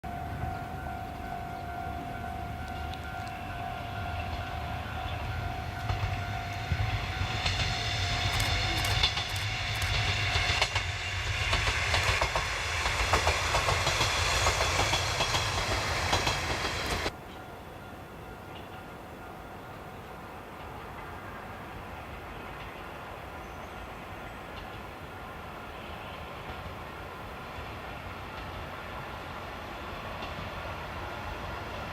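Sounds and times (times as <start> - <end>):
wheels clicking over rail joints: 5.3 - 17.2.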